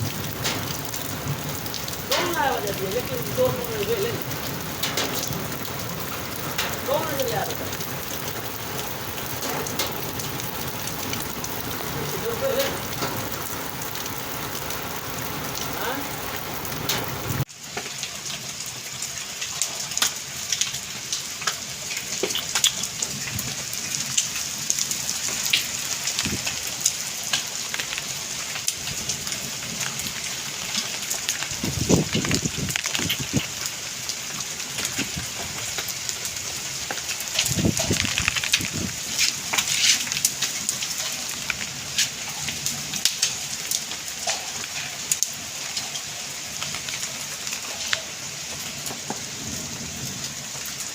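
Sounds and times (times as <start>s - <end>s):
low rumbles: 0.0s - 17.4s
heavy rain and hail: 0.0s - 50.9s.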